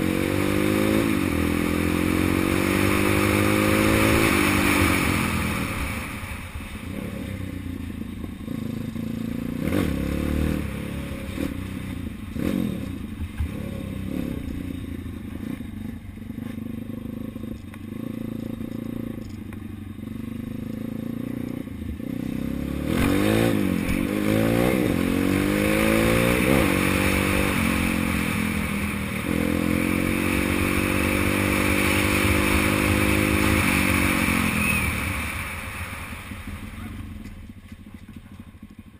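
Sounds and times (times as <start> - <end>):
dirt bike engine revving: 0.0 - 7.8, 8.5 - 14.8, 20.2 - 37.3
clatter from the bike: 37.1 - 38.9.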